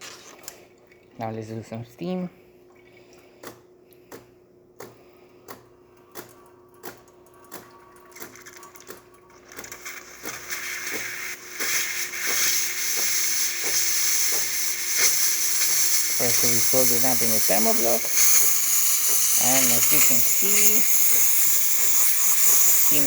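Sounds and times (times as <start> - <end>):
espresso machine clicking: 9.6 - 23.0
steam wand hissing: 9.7 - 23.0
machine humming: 13.0 - 23.0.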